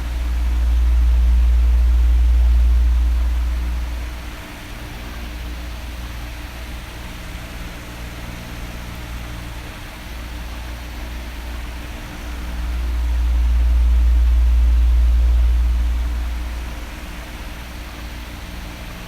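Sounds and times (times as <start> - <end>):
electric fan whooshing: 0.0 - 6.9, 11.1 - 18.4
low rumble of air: 0.0 - 7.5, 10.4 - 19.0.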